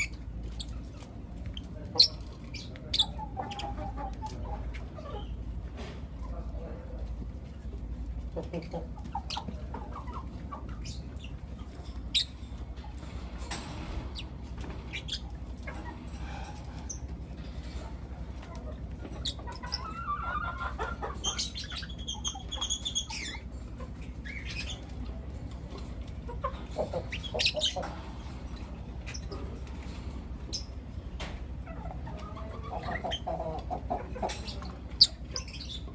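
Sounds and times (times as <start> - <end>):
steady low hum: 0.0 - 35.9
lovebirds chirping: 8.4 - 12.4, 14.1 - 16.0, 18.6 - 25.0, 26.3 - 29.7, 30.5 - 31.0, 31.7 - 35.9.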